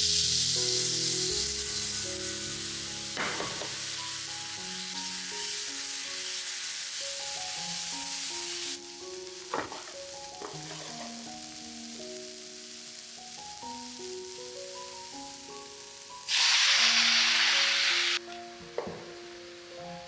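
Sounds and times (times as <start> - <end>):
food sizzling in a frying pan: 0.0 - 18.3, 19.2 - 20.0
soft background music: 0.0 - 20.0
stirring scrapes: 9.6 - 11.2.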